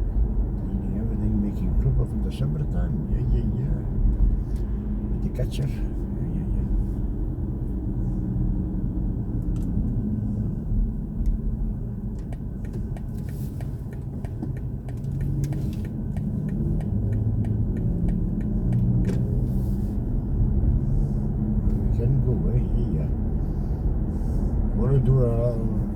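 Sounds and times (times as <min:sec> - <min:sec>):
car cabin rumble: 0:00.0 - 0:25.9
light ticks: 0:12.2 - 0:19.2.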